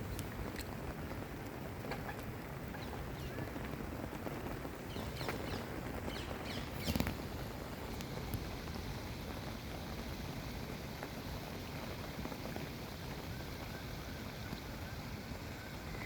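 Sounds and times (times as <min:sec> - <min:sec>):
steady background hiss: 0:00.0 - 0:16.0
small birds chirping: 0:01.9 - 0:03.7, 0:04.8 - 0:07.2.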